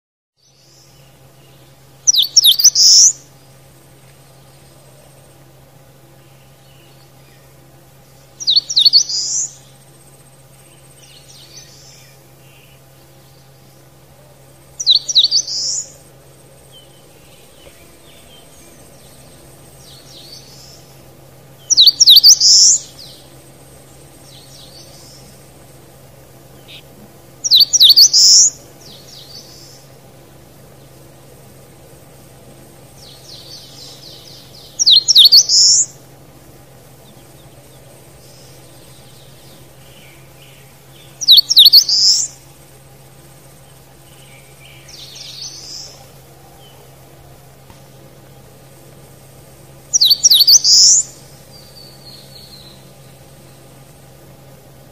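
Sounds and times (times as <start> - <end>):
songbird singing rapid high notes: 0.5 - 3.5, 6.2 - 13.9, 14.7 - 30.0, 32.8 - 36.1, 36.7 - 42.5, 49.9 - 53.9.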